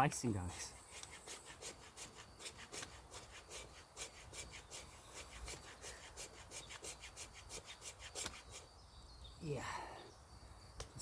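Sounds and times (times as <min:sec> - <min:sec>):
machete scraping wood: 0:00.6 - 0:08.7.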